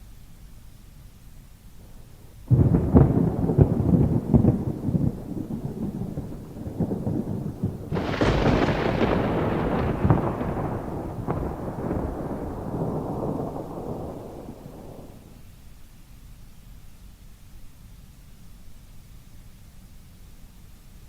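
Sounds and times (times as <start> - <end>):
faint rain: 0.0 - 21.0
thunder cracking and rumbling: 1.8 - 15.4.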